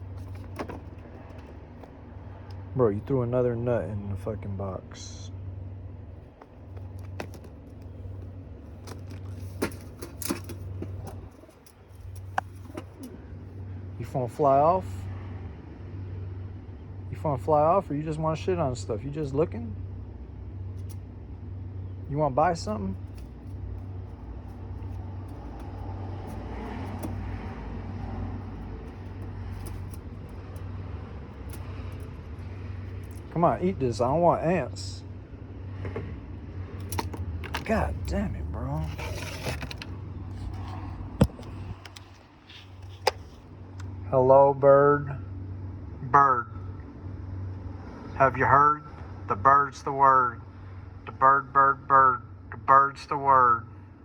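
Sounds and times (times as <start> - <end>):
steady low hum: 0.0 - 54.0
bird pecking at nuts: 6.2 - 13.2, 23.0 - 33.4, 36.7 - 37.8.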